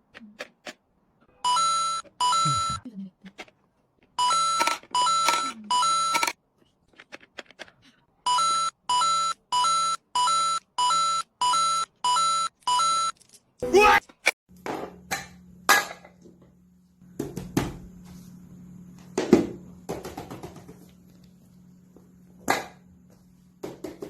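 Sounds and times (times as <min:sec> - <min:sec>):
electronic beeps: 0:01.5 - 0:02.8.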